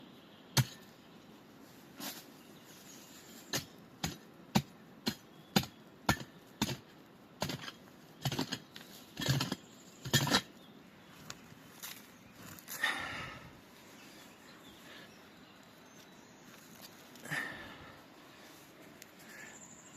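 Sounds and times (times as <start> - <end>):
hand tool striking: 3.5 - 6.8.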